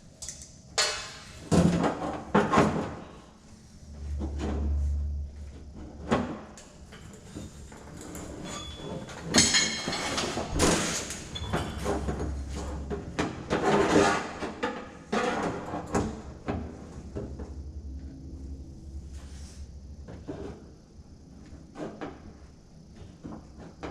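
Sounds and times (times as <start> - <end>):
rattling metal clatter: 6.8 - 20.7.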